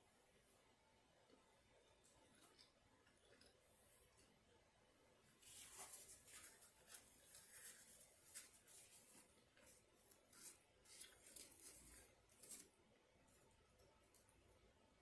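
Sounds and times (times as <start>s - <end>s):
food wrapper rustling: 5.4s - 12.8s.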